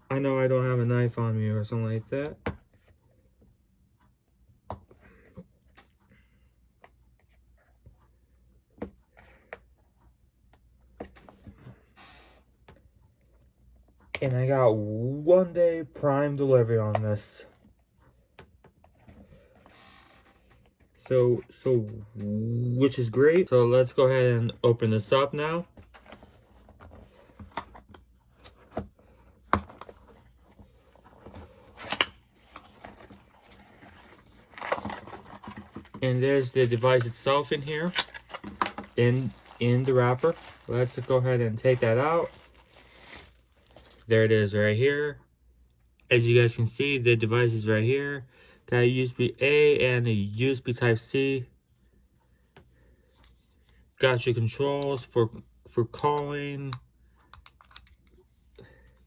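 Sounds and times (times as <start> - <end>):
cardboard box rustling: 28.4 - 44.1
packaging clicking and snapping: 31.8 - 44.0.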